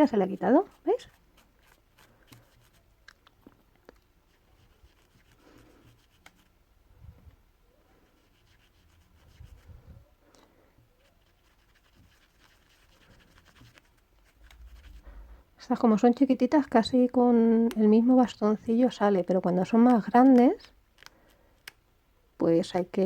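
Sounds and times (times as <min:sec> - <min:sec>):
faint scratching and rubbing: 0:00.0 - 0:03.0, 0:04.2 - 0:15.5.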